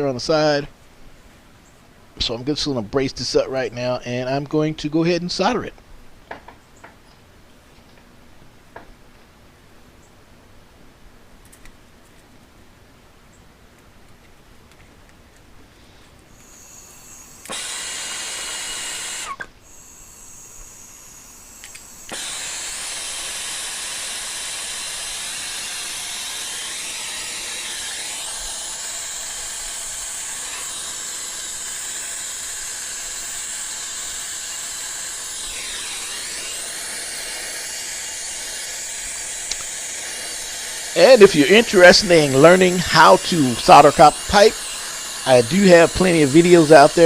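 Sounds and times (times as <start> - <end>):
gas torch hissing: 21.5 - 47.0.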